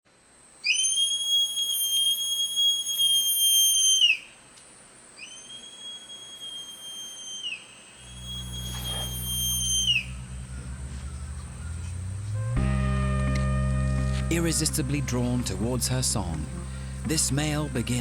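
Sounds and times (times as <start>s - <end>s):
sloth whistling calls: 0.6s - 4.4s, 5.2s - 12.6s.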